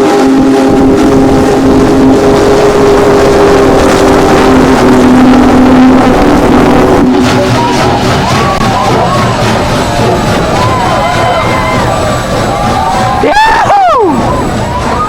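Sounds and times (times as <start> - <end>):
locomotive horn chord: 0.0 - 8.1
train rumbling: 0.0 - 15.0.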